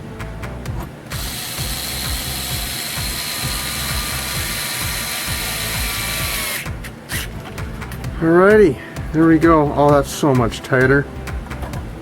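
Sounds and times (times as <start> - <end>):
electric screwdriver running: 1.1 - 7.3.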